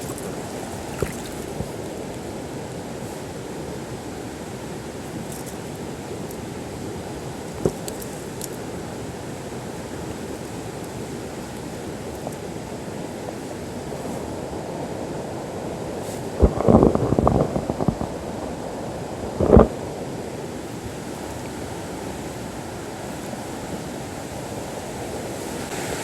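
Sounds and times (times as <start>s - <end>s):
stream water rushing: 0.0s - 26.0s.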